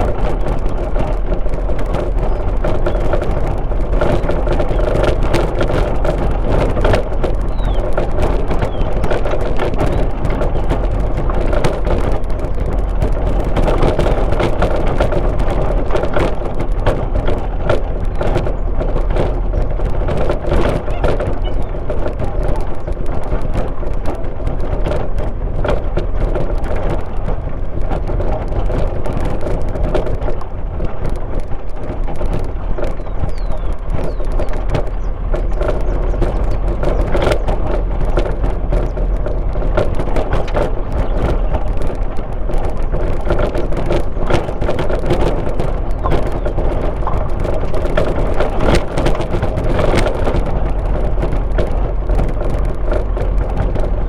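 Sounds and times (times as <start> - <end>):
engine and tyre rumble: 0.0 - 54.0
small knocks and rattles: 0.0 - 54.0.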